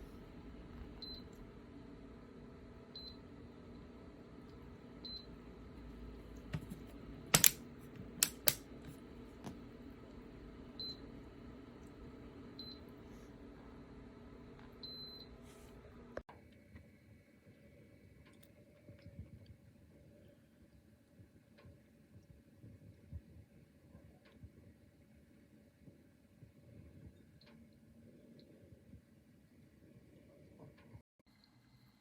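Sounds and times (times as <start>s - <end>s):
sharp loud clicks: 7.3s - 7.6s.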